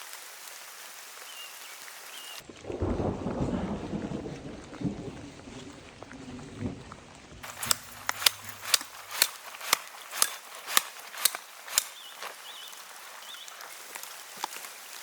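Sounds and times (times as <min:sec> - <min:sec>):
rain: 0:00.0 - 0:15.0
low rumble of thunder: 0:02.6 - 0:07.4
footsteps crunching in snow: 0:07.4 - 0:15.0.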